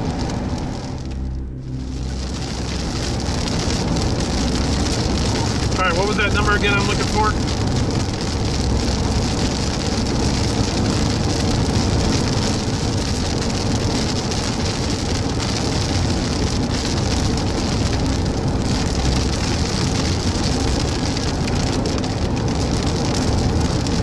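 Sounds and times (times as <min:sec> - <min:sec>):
heavy rain on car: 0:00.0 - 0:24.0
road and engine rumble: 0:00.0 - 0:24.0.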